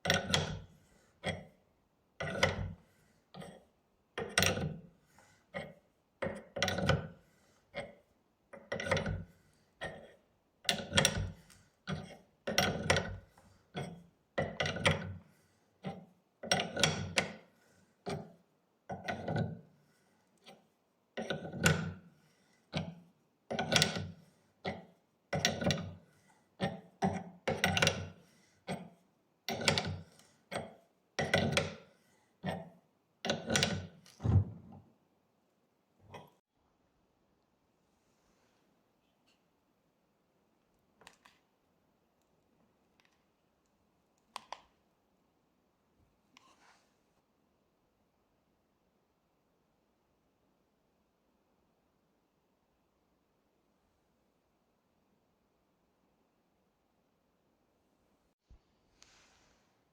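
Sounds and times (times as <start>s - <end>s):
metal parts knocking and clinking: 23.5s - 24.8s, 26.6s - 28.9s, 29.5s - 31.8s, 33.2s - 34.0s.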